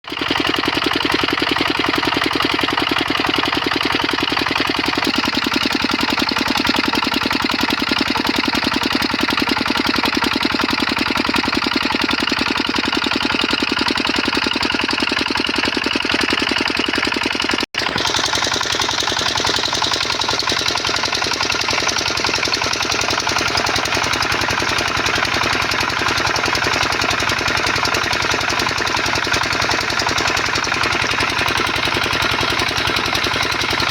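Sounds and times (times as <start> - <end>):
diesel engine driving water pump: 0.0 - 33.9.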